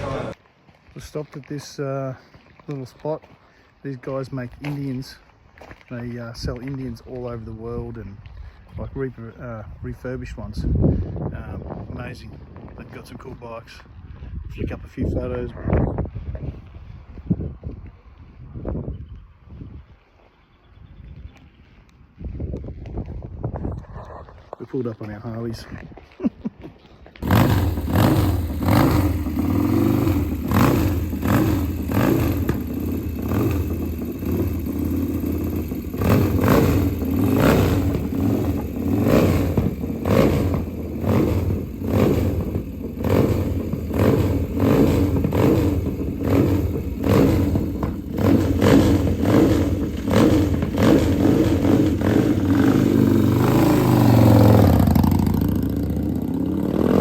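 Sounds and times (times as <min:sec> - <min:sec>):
motorcycle engine running: 0:27.2 - 0:57.0.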